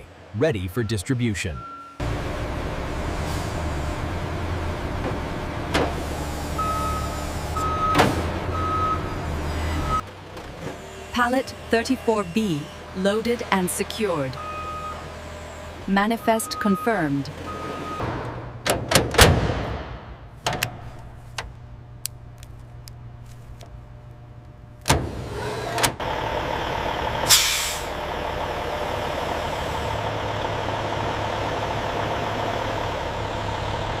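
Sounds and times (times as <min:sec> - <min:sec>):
truck engine idling: 0:00.0 - 0:34.0
air-brake hiss: 0:27.3 - 0:28.0.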